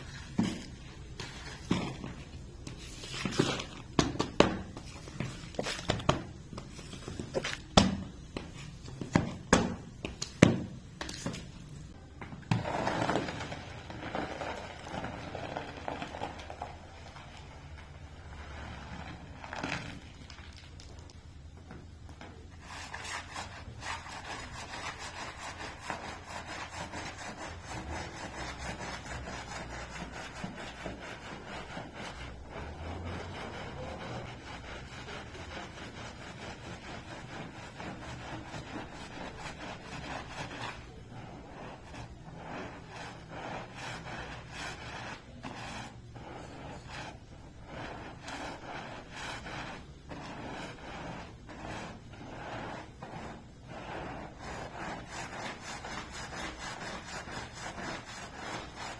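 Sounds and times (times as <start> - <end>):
cleaning tool rubbing carpet: 22.6 - 58.9.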